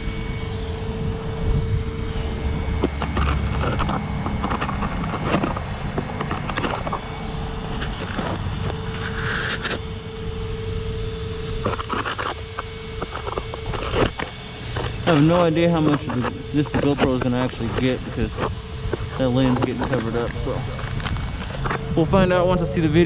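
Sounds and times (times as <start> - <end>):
radio-controlled car motor whine: 0.0 - 23.0
debris and tyres scraping: 2.2 - 9.9, 11.5 - 22.0.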